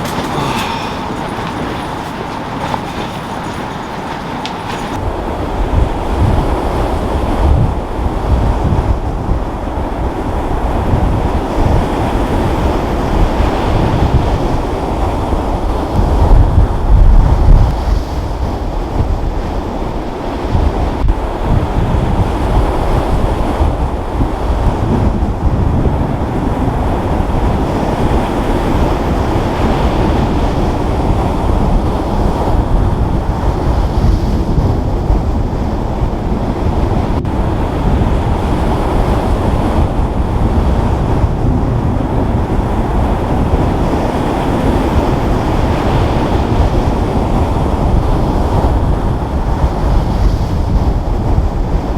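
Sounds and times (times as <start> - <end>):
surf rushing: 0.0 - 5.1
wind buffeting microphone: 0.0 - 51.9.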